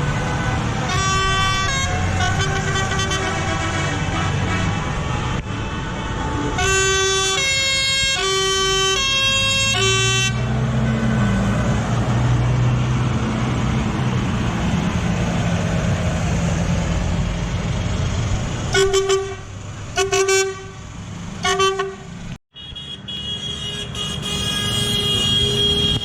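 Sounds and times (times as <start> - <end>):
two-tone horn blaring: 0.3 - 5.4, 6.0 - 10.6, 18.7 - 20.8, 21.4 - 26.0.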